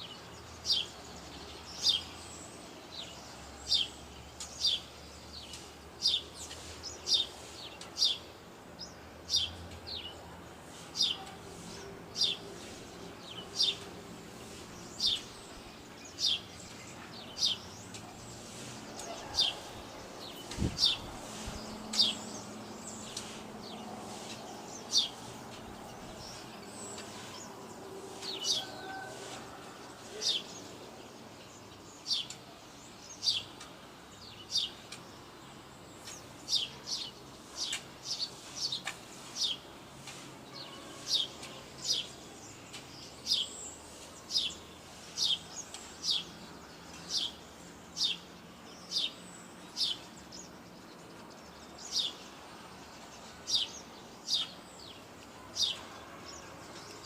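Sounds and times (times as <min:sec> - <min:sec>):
bird chirping: 0:00.0 - 0:29.4
faint outdoor background: 0:00.0 - 0:57.0.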